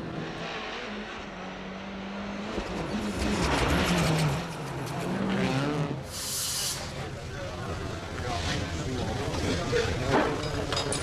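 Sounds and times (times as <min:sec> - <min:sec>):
rally car engine at high revs: 0:00.0 - 0:06.2.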